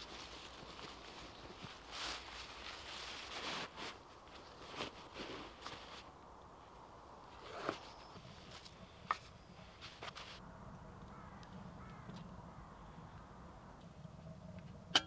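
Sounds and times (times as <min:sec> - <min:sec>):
faint bird calls: 0:11.0 - 0:13.5.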